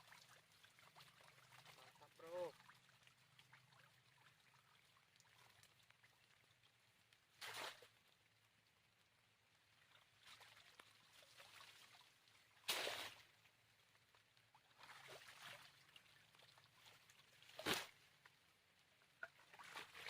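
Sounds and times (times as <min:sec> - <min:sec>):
faint water trickling: 0:00.0 - 0:20.0
short loud splashes: 0:12.6 - 0:13.2.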